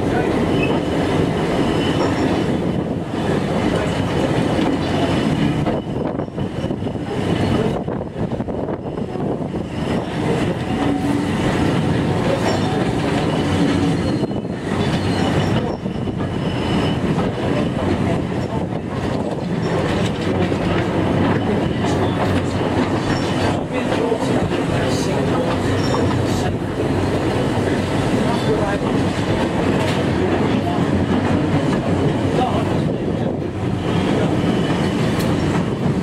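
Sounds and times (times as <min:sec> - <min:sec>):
train wheel and rail noise: 0:00.0 - 0:36.0
faint wheel squeal: 0:12.5 - 0:17.2.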